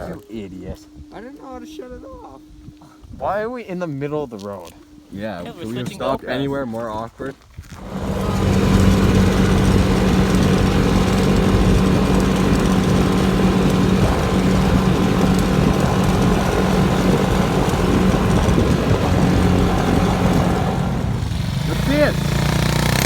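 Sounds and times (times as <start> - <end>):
small motorbike engine running: 7.8 - 23.0.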